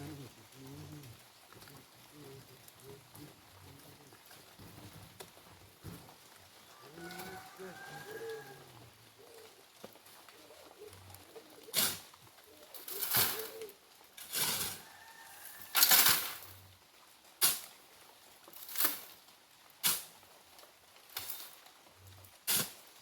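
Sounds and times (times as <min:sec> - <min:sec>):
shovels scooping sand: 0:11.7 - 0:12.0, 0:14.2 - 0:16.5, 0:22.5 - 0:22.8.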